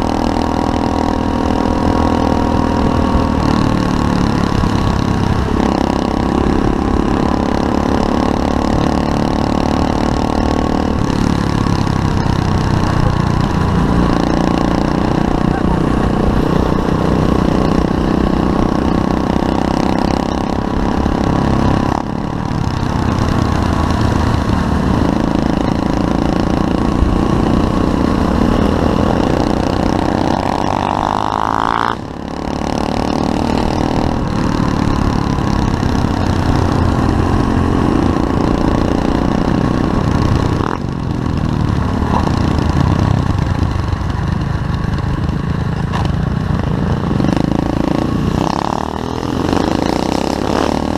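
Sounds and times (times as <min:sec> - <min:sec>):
motorbike engine revving: 0:00.0 - 0:50.9.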